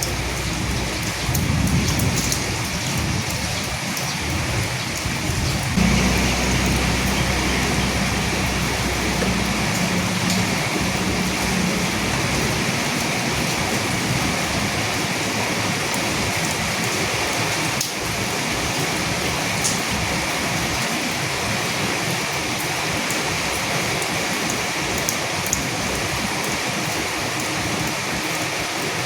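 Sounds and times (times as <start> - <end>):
raindrops ticking: 0.0 - 21.3
steady rain hiss: 0.0 - 29.0
faint low rumble: 5.8 - 14.8.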